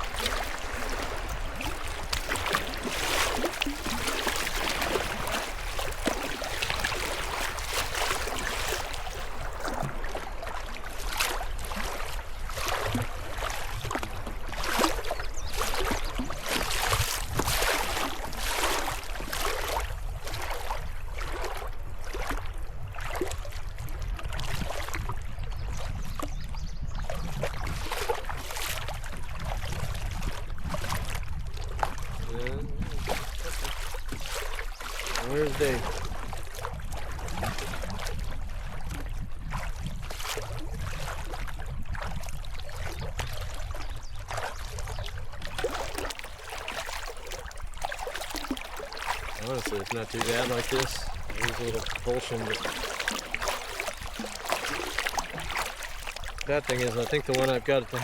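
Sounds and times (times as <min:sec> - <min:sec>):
river water rushing: 0:00.0 - 0:10.1, 0:45.5 - 0:58.0
paddle splashes: 0:00.0 - 0:58.0.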